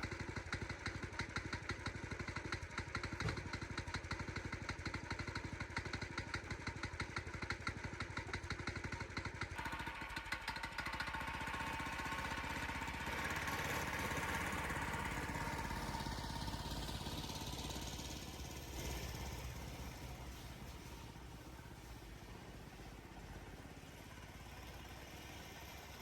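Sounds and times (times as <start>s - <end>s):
small engine revving: 9.6s - 21.2s.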